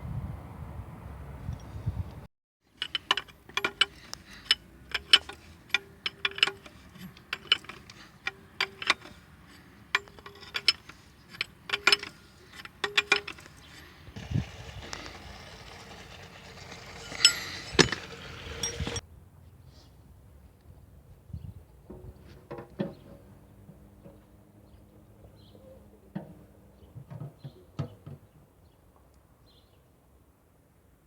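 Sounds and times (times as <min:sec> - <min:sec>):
metallic tool clicks and clinks: 0:09.9 - 0:13.8, 0:14.4 - 0:19.0.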